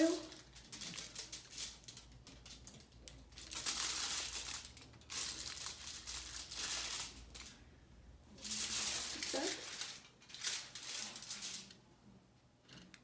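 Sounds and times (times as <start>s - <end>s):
aluminum foil crinkling: 0.0s - 11.8s.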